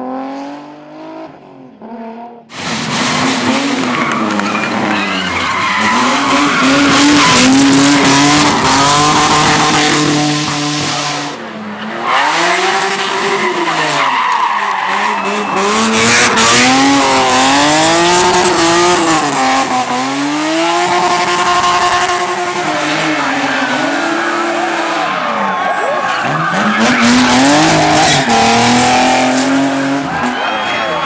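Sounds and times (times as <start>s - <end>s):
car engine revving: 0.0s - 30.5s
tyres squealing: 3.8s - 10.3s.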